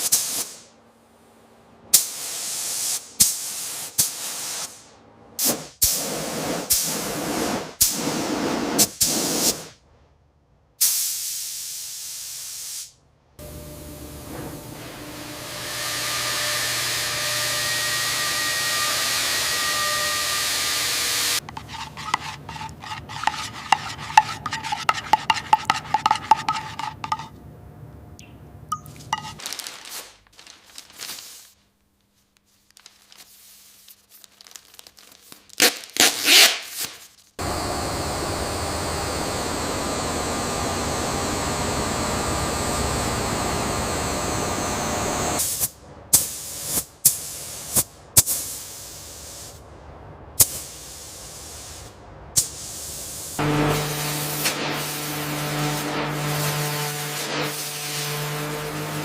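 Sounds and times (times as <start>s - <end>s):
compressed air hissing: 45.4s - 49.6s.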